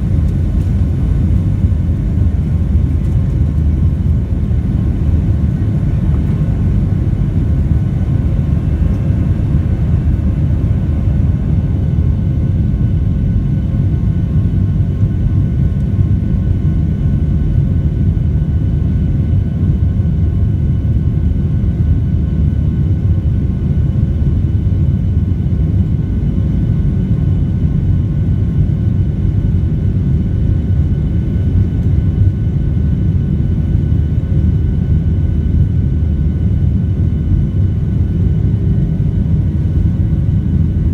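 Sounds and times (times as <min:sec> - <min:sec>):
faint whining tones: 0:00.0 - 0:12.8
jet engine and airflow rumble: 0:00.0 - 0:40.9.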